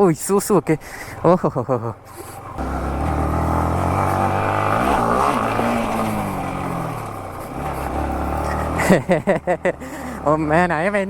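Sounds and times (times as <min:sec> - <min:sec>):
motorcycle engine running: 0:02.4 - 0:09.6.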